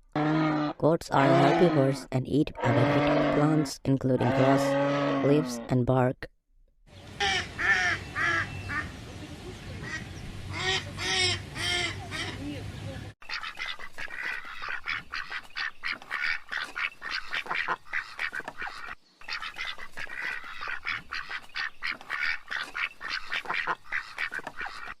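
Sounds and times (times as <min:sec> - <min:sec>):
flock of birds calling: 0:07.1 - 0:25.0.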